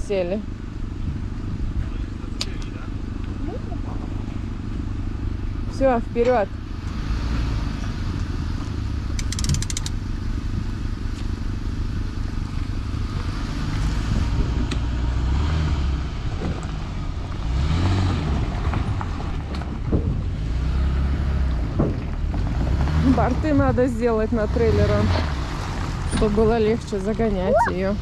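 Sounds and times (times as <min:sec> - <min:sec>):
engine rumbling: 0:00.0 - 0:28.0
rapid clicks: 0:09.2 - 0:10.0
wind buffeting microphone: 0:14.0 - 0:15.0.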